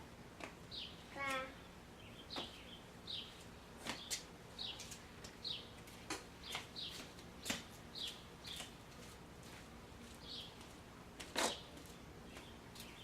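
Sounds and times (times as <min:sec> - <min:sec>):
small bird chirping: 0:00.7 - 0:05.7.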